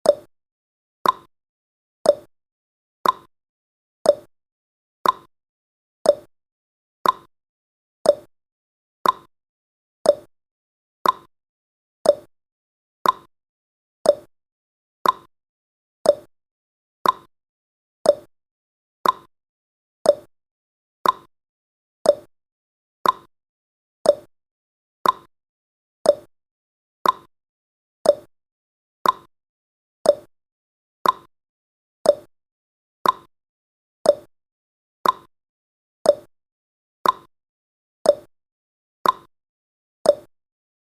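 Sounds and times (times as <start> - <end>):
clock ticking: 3.0 - 3.3, 5.0 - 5.3, 7.0 - 7.3, 9.0 - 9.3, 11.0 - 11.3, 13.0 - 13.3, 15.0 - 15.3, 16.1 - 16.3, 17.0 - 17.3, 19.0 - 19.3, 21.0 - 21.3, 22.1 - 22.3, 23.0 - 23.3, 24.1 - 24.3, 25.0 - 25.3, 26.1 - 26.3, 27.0 - 27.3, 28.0 - 28.3, 29.0 - 29.3, 30.1 - 30.3, 31.0 - 31.3, 33.0 - 33.3, 34.1 - 34.3, 35.0 - 35.3, 37.0 - 37.3, 38.1 - 38.3, 39.0 - 39.3, 40.1 - 40.3.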